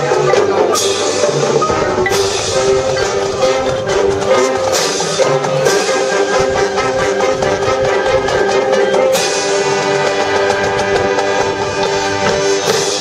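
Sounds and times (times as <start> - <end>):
brass chords: 0.0 - 13.0
drums: 0.0 - 13.0.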